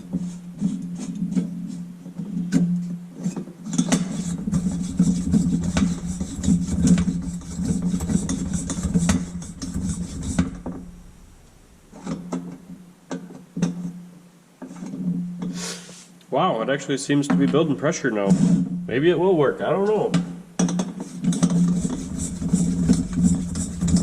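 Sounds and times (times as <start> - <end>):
hand pump strokes rasping: 3.7 - 10.9, 20.9 - 24.0
low hum: 4.4 - 13.0.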